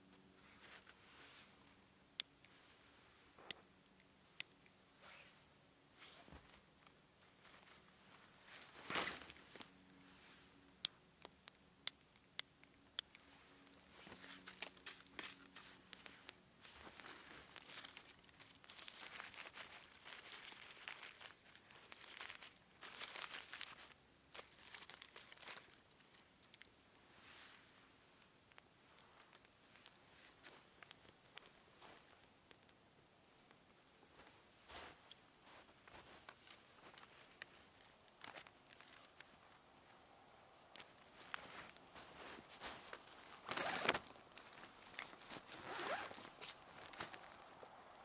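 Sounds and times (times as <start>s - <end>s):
crinkly material rustling: 6.0s - 10.5s, 13.2s - 32.6s, 33.4s - 48.0s.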